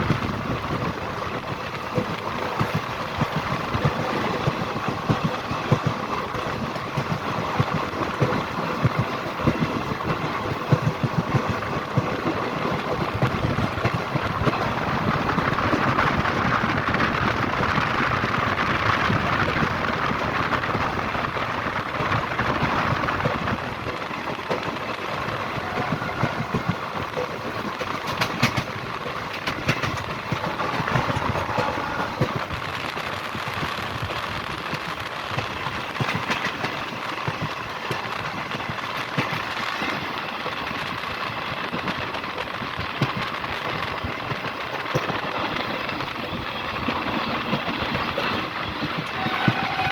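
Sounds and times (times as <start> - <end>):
train rumbling and clattering: 0.0 - 49.9.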